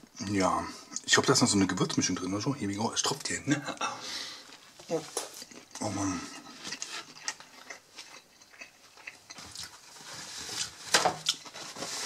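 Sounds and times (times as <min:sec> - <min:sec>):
person chewing food: 0:04.5 - 0:11.6.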